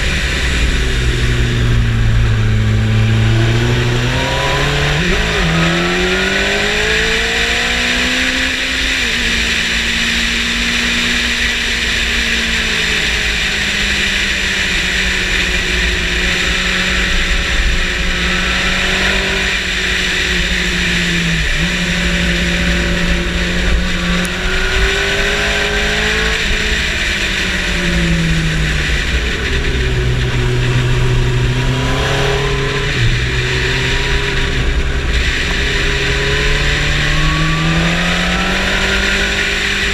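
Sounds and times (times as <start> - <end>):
motorcycle engine accelerating: 0.0 - 39.9
steady rushing noise: 8.4 - 39.9.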